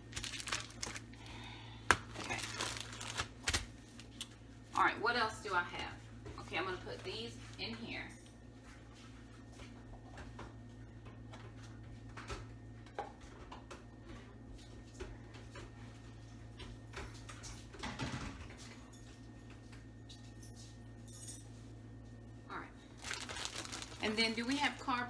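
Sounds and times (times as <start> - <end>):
packages being handled: 0.0 - 4.3, 22.9 - 25.0
steady low hum: 0.0 - 25.0.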